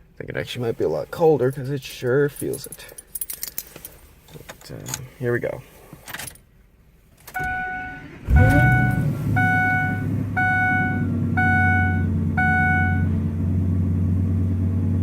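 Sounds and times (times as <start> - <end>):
dashboard warning chime: 7.4 - 13.1
truck engine cranking and idling: 7.4 - 15.0.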